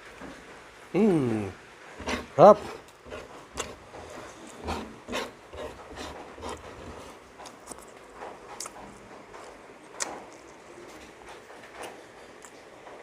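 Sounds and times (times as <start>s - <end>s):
chewing and lip-smacking: 6.6s - 10.8s.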